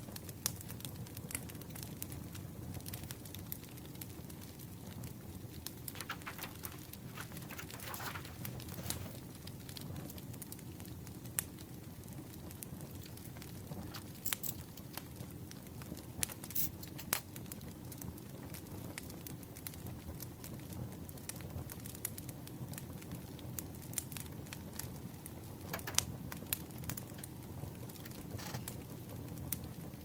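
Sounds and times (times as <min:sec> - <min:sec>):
campfire crackling: 0:00.0 - 0:30.0
paper rustling and clicks: 0:05.6 - 0:09.4, 0:13.0 - 0:15.1, 0:25.6 - 0:28.8.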